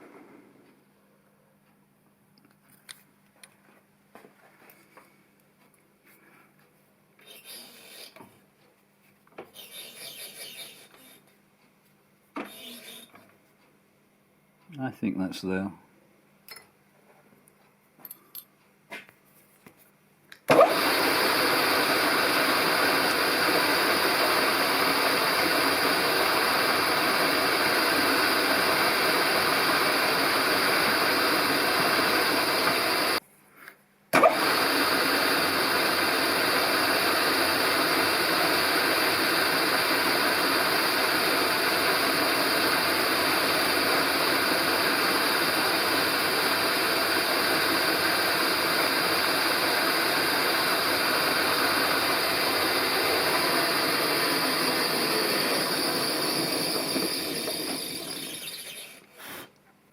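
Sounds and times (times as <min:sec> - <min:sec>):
workshop machine tool running: 0:12.4 - 0:13.2, 0:20.5 - 0:33.2, 0:34.2 - 0:59.1.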